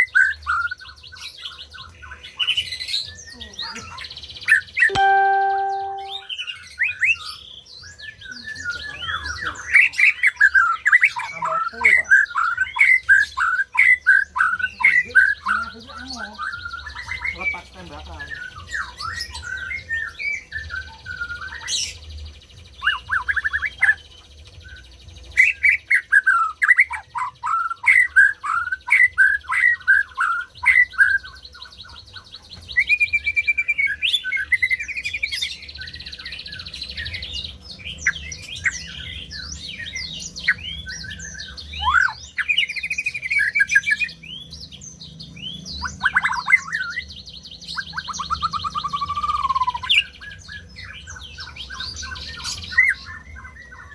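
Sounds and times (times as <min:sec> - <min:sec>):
bird singing whistled phrases: 0:04.5 - 0:11.4, 0:38.0 - 0:44.5, 0:47.7 - 0:53.9.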